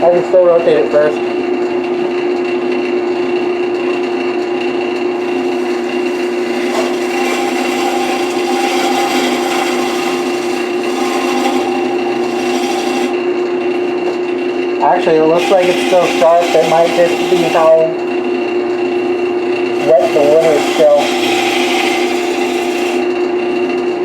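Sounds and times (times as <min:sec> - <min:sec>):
wood lathe humming: 0:00.0 - 0:24.0
turning tool scraping wood: 0:05.2 - 0:24.0.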